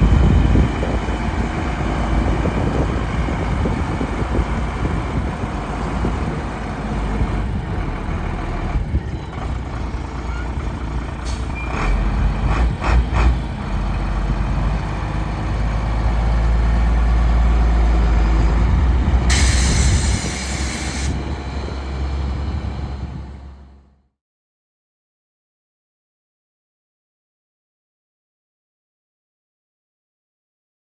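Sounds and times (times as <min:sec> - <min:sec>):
truck diesel engine rumble: 0:00.0 - 0:24.0
air hissing: 0:19.3 - 0:21.2.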